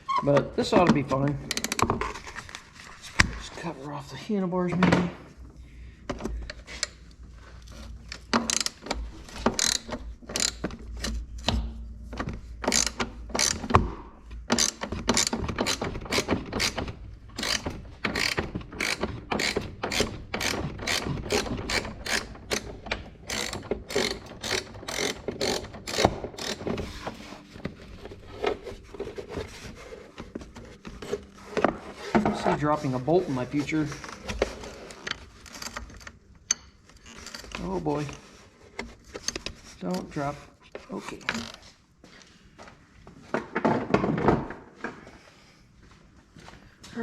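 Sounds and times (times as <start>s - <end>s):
ratchet wrench clicking: 9.6s - 10.6s, 12.7s - 13.6s, 14.6s - 16.8s, 17.4s - 22.7s, 23.3s - 26.6s.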